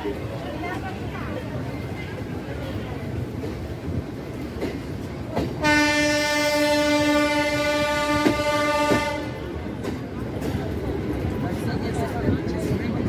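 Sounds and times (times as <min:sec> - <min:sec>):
moving train rumble: 0:00.0 - 0:13.0
train horn: 0:05.6 - 0:09.4.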